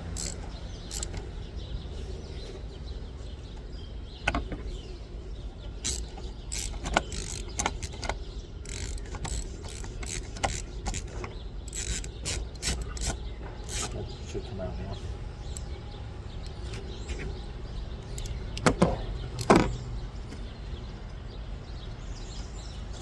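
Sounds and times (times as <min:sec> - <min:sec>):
cap creaking as it turns: 0:00.0 - 0:01.2, 0:05.8 - 0:14.0
socket wrench clicking and knocking: 0:00.1 - 0:01.2, 0:05.8 - 0:14.0.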